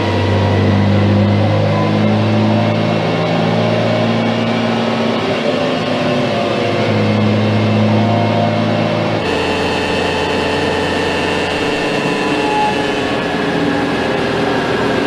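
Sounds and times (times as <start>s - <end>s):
machinery hum: 9.2s - 15.0s.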